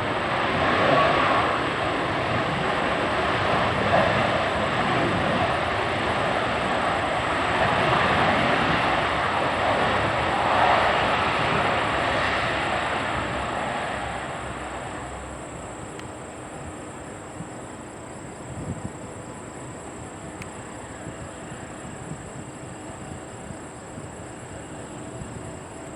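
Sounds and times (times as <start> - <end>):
jet engine roar: 0.0 - 25.9
faint clicks: 15.9 - 16.2, 20.3 - 20.6.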